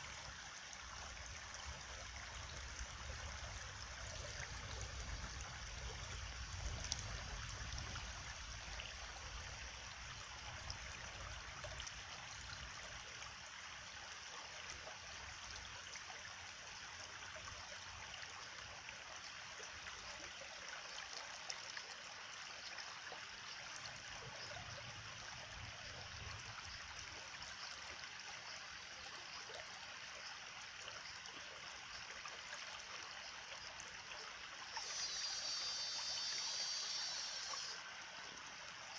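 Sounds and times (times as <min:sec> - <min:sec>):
stream water trickling and gurgling: 0:00.0 - 0:38.9.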